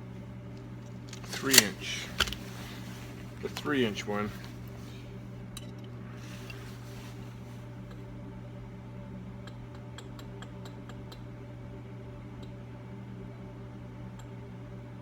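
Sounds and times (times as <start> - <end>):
machine humming: 0.0 - 9.4.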